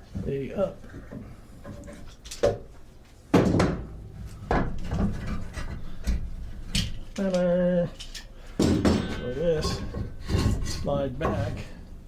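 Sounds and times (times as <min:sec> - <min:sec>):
wooden parts knocking: 0:08.6 - 0:11.8
wood rubbing on wood: 0:09.3 - 0:11.8.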